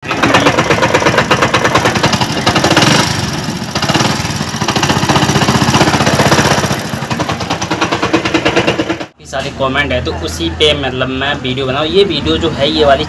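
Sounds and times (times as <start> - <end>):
motorcycle engine knocking clatter: 0.0 - 9.2.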